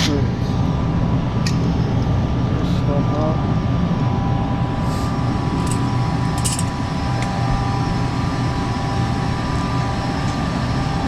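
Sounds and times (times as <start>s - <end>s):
gas furnace rumbling: 0.0s - 11.0s
tools clinking: 5.6s - 6.8s.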